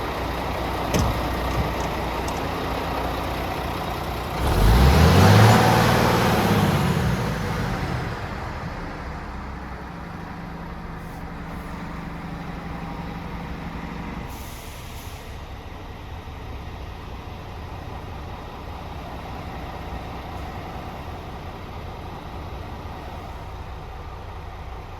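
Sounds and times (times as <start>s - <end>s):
diesel truck engine revving: 0.0s - 9.6s.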